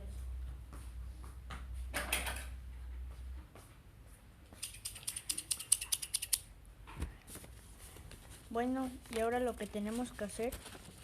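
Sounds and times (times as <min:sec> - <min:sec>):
rapid small sharp clicks: 0:04.6 - 0:06.5.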